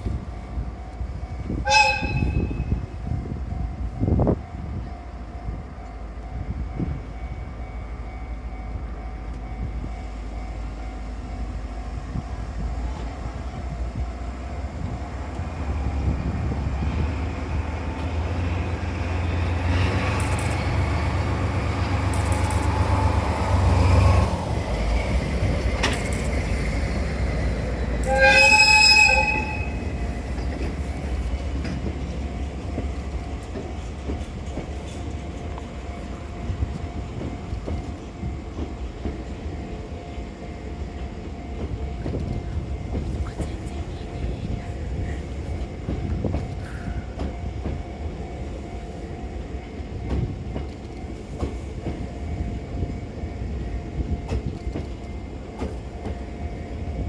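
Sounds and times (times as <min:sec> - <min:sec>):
train rumbling past: 0:00.0 - 0:57.0
train horn blast: 0:01.5 - 0:02.8, 0:28.0 - 0:29.9.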